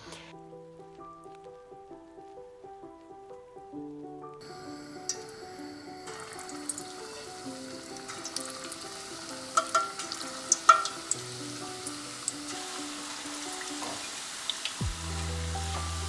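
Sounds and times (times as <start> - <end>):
soft background music: 0.0 - 16.0
food sizzling in hot oil: 4.4 - 16.0.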